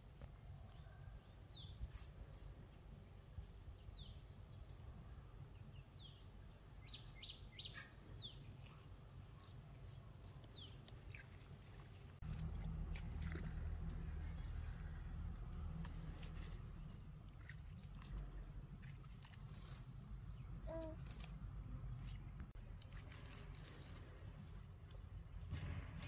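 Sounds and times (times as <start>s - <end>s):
faint low rumble: 8.5s - 26.0s.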